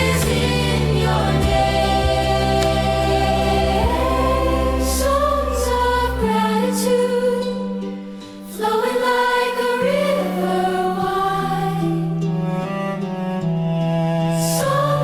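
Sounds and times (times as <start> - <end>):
choir-like voices holding notes: 0.0 - 15.0
low sustained accompaniment: 0.0 - 15.0.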